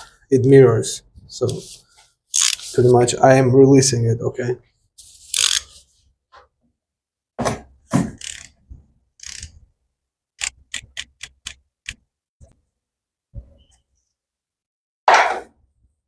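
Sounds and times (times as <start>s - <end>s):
ratchet clicking: 2.4s - 2.6s, 5.4s - 5.6s, 8.2s - 8.5s, 9.2s - 9.5s.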